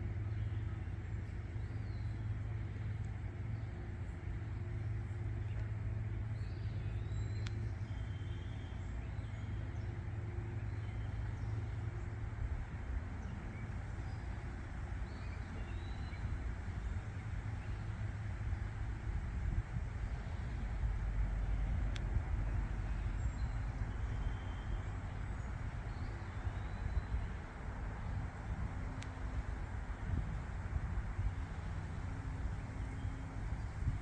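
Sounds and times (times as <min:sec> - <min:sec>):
road traffic rumble: 0:00.0 - 0:34.0.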